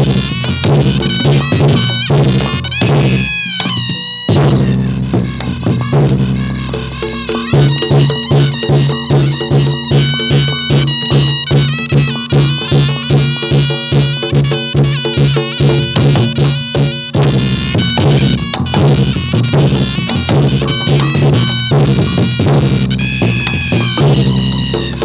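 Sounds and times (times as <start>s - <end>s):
held wind or chime melody: 0.0s - 3.9s, 4.5s - 14.4s
drums fast beat: 0.0s - 25.0s.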